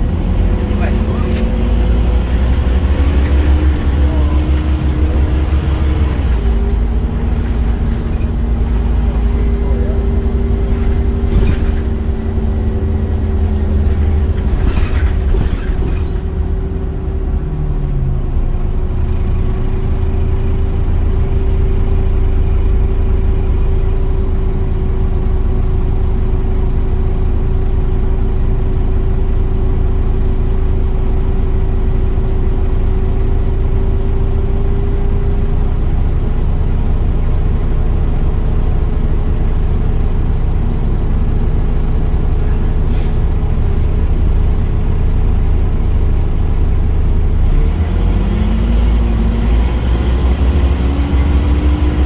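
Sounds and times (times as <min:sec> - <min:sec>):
steady whine: 0:00.0 - 0:14.7
bus diesel engine running: 0:00.0 - 0:52.0.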